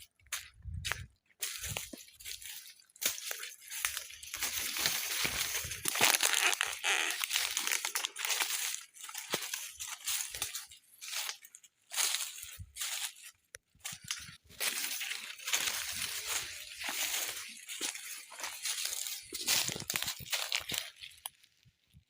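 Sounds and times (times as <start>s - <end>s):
footsteps crunching through dry leaves: 0.0s - 21.7s.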